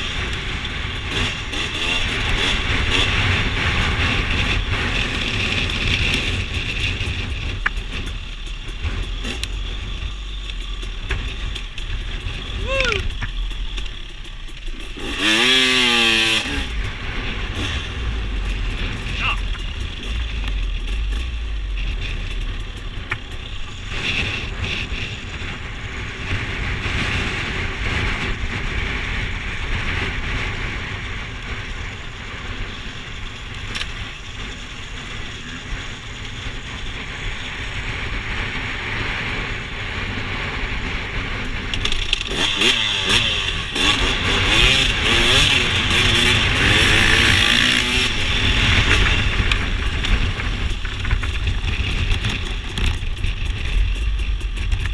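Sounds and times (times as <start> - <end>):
dirt bike engine revving: 0.0 - 54.8.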